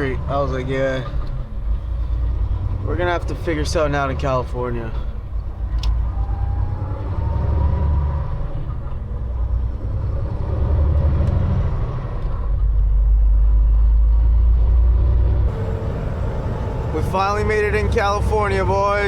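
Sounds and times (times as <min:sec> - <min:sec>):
truck engine and road rumble: 0:00.0 - 0:19.0
faint rising whine: 0:15.5 - 0:19.0.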